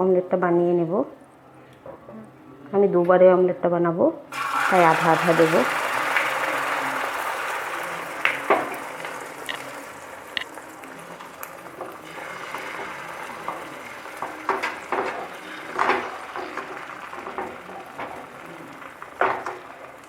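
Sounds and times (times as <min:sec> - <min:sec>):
egg batter sizzling in hot oil: 0:04.3 - 0:20.0
utensil knocking and scraping pan: 0:13.4 - 0:18.3.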